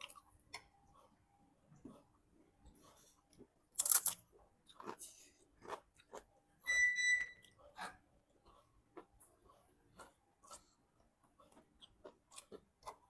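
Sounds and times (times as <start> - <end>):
short high-pitched beep: 6.6 - 7.4.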